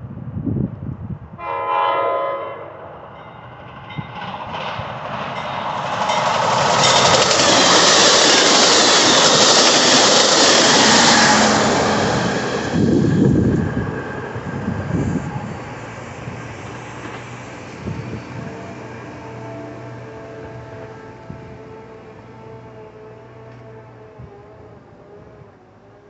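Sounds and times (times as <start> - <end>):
train horn blast: 1.4 - 3.0, 18.3 - 26.0
steel wheels rushing on rail: 2.8 - 24.4.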